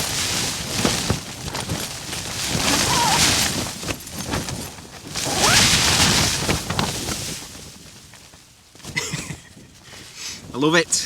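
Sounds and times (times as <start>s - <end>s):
tent fabric flapping: 0.0s - 11.0s
wind gusts: 0.0s - 11.0s.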